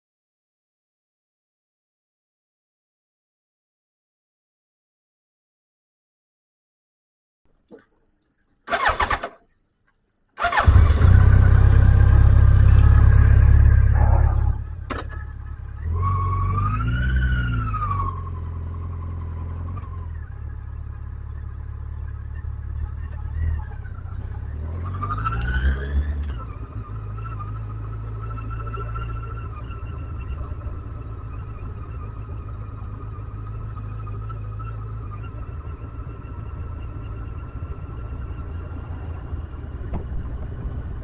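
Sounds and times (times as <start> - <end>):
motorcycle engine starting and idling: 7.7 - 9.7, 10.3 - 15.9, 17.6 - 41.0
motorcycle engine revving: 10.4 - 41.0.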